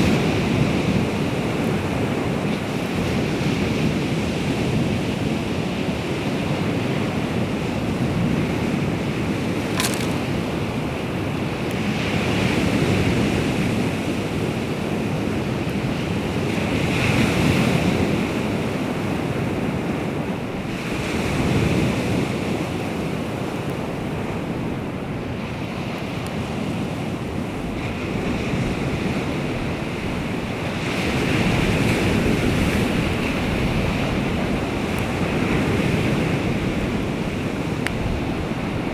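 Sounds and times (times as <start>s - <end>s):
sharp click: 9.7s - 10.4s.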